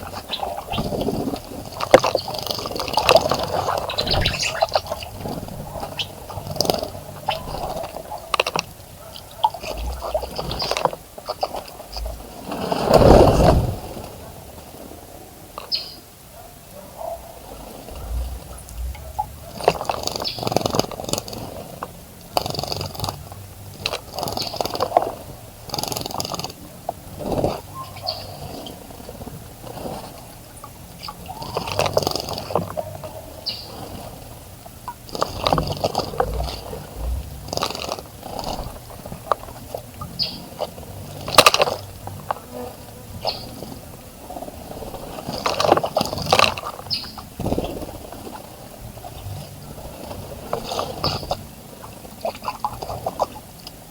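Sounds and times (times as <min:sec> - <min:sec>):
bird splashing in water: 0:00.0 - 0:14.2
wings fluttering in water: 0:00.0 - 0:14.4, 0:19.5 - 0:26.6, 0:27.2 - 0:32.8, 0:35.0 - 0:53.8
short high bird chirps: 0:03.8 - 0:05.2.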